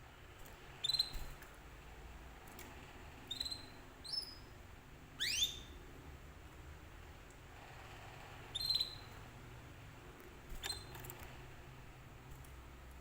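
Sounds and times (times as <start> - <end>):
canary chirping: 0.4 - 1.5, 3.1 - 5.9, 8.4 - 9.4, 10.5 - 11.2.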